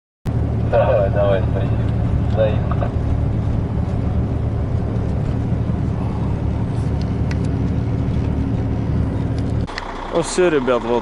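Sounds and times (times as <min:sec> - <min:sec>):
road noise: 0:00.3 - 0:11.0
truck diesel engine running: 0:00.3 - 0:11.0.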